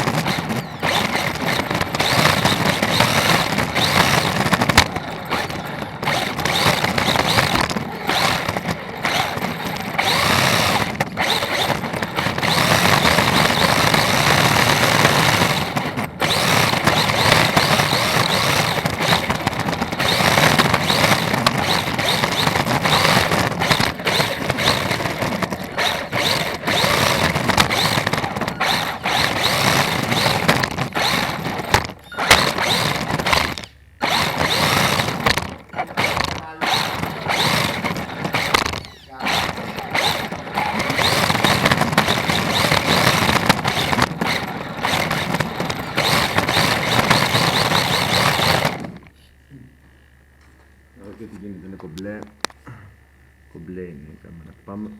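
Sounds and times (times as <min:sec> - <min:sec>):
electric motor whining: 0:00.0 - 0:54.9.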